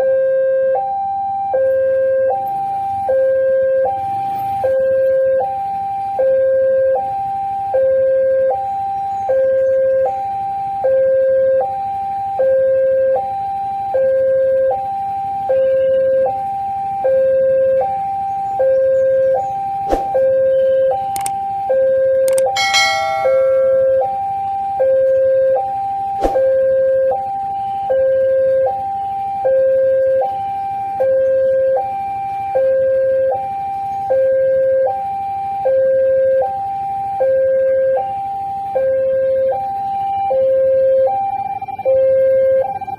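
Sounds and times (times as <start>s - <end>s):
level crossing alarm: 22.2s - 25.7s
bright horn-like tone: 22.6s - 24.1s.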